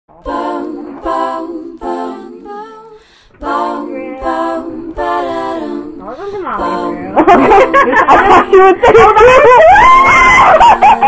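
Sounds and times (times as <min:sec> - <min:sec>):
girl singing wordless tune: 0:00.2 - 0:08.7.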